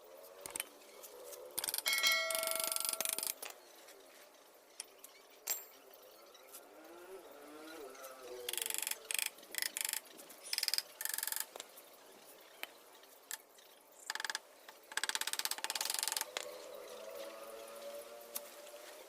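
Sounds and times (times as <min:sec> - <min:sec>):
ratchet wrench clicking: 0:01.6 - 0:03.4, 0:08.5 - 0:11.5.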